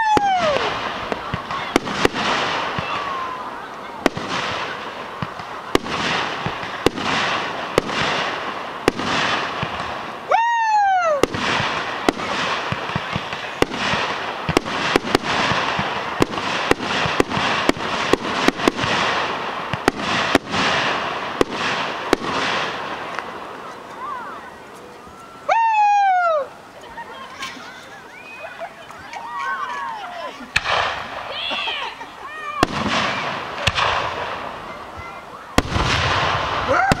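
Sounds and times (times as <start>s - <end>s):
falling firework whistle: 0.0s - 3.4s
fireworks background din: 0.0s - 37.0s
firework shells bursting: 11.0s - 24.0s, 30.5s - 31.4s, 32.6s - 34.8s.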